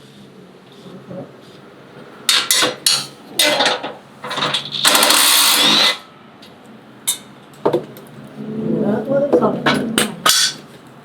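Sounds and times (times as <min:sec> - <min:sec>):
sharp metal knocks: 0:02.3 - 0:05.8, 0:09.7 - 0:10.7.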